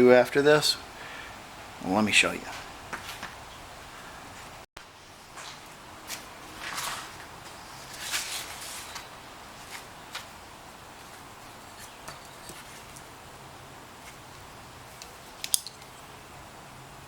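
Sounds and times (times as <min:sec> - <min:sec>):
short rustling scrapes: 0:05.3 - 0:10.4, 0:11.0 - 0:13.1.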